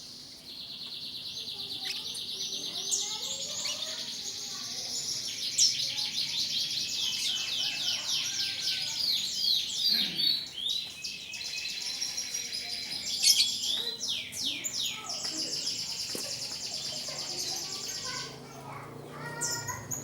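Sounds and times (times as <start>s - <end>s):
canaries singing trills: 0.0s - 20.0s.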